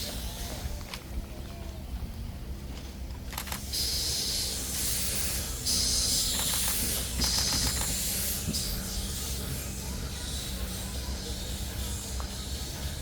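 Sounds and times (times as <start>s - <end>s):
steam hissing bursts: 3.5s - 13.0s.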